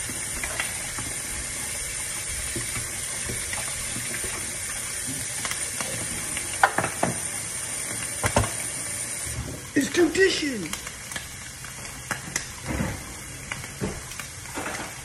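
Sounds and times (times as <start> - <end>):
shrimp sizzling in a pan: 0.0 - 15.0.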